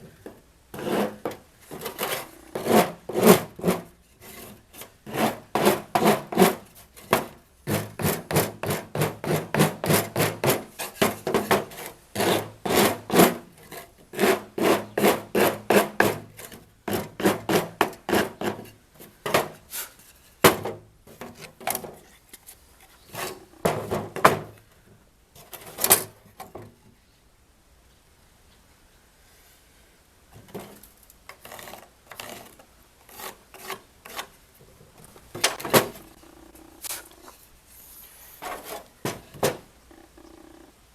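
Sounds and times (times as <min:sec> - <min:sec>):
hand tool strokes on wood: 0:00.8 - 0:20.4.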